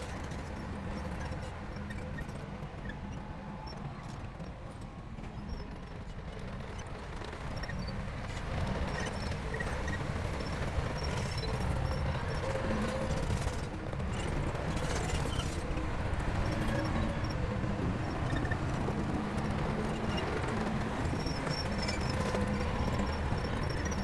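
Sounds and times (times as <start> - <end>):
crawler tracks clanking and squeaking: 0.0 - 24.0.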